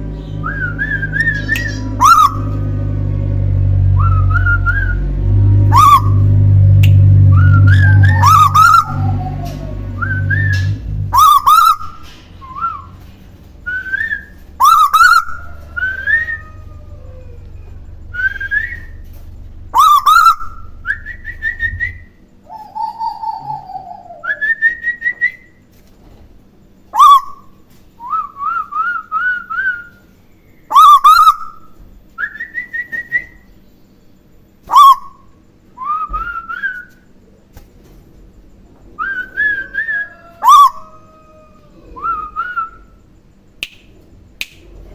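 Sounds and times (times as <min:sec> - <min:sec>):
bird whistling: 0:00.3 - 0:02.8, 0:03.9 - 0:13.0, 0:13.7 - 0:16.7, 0:17.6 - 0:25.6, 0:27.0 - 0:33.6, 0:34.7 - 0:37.0, 0:39.0 - 0:41.3, 0:42.0 - 0:43.0
person whistling: 0:10.0 - 0:10.7, 0:19.9 - 0:22.1, 0:42.0 - 0:42.9.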